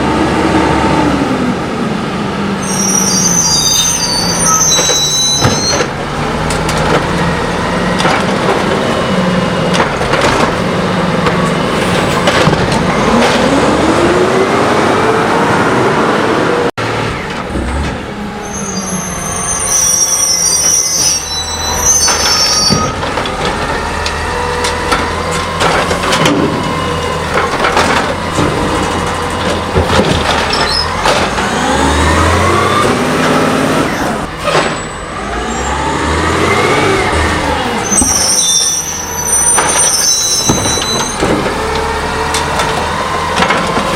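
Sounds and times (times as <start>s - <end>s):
garbage truck engine revving: 0.0s - 43.9s
high-pitched squeals: 2.6s - 6.0s, 12.9s - 25.4s, 26.4s - 41.3s.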